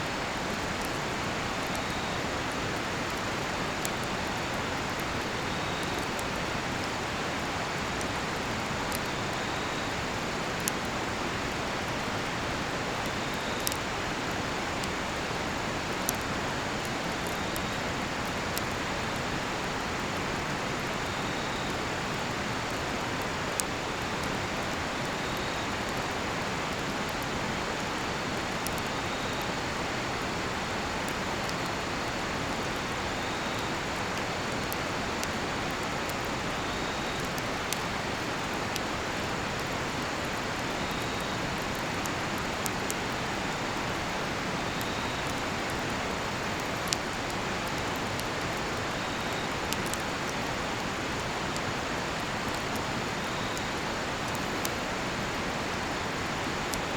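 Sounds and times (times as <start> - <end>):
campfire popping and snapping: 0.2 - 56.0
crickets chirping: 28.2 - 56.9.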